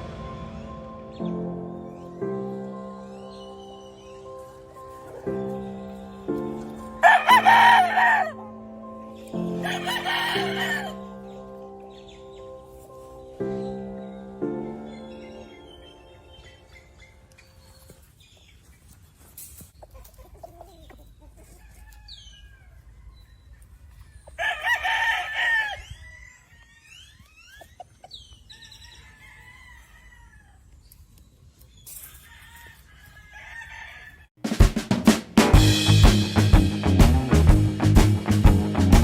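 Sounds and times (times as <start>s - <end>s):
chickens clucking: 1.9s - 14.1s, 14.8s - 29.8s
rooster crowing: 7.0s - 8.4s, 9.6s - 11.1s, 21.6s - 23.7s, 24.3s - 27.0s, 28.6s - 30.7s, 32.2s - 34.3s.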